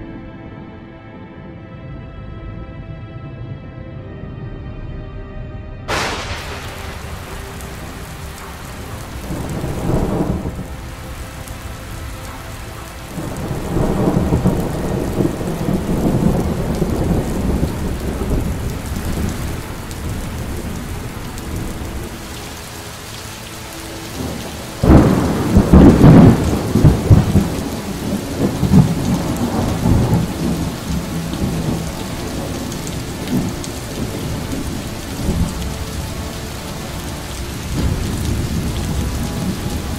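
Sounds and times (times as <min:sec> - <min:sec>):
steady rain: 0:05.9 - 0:39.9
thunder rumbling: 0:05.9 - 0:39.9.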